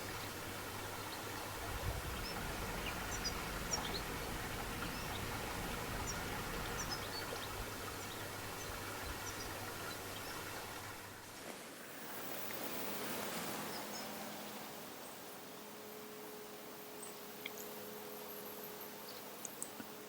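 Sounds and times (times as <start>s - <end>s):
birds chirping: 0.0s - 11.3s
field ambience low rumble: 0.0s - 11.3s.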